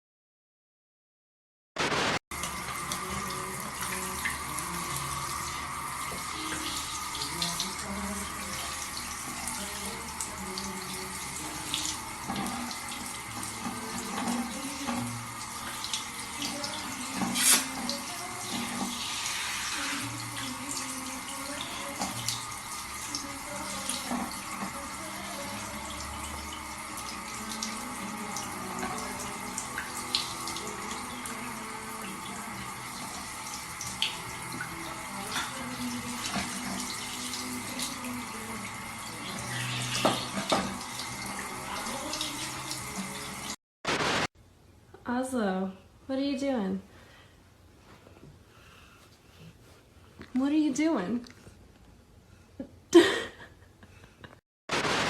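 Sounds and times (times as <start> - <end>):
water running steadily: 2.3 - 43.6.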